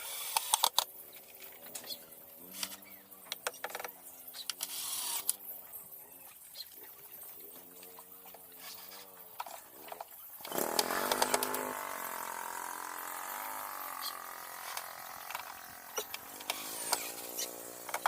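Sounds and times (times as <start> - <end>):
faint wavering hum: 0.0 - 18.0
tool clicking into wood: 10.4 - 11.7
power tool whining: 10.4 - 18.0.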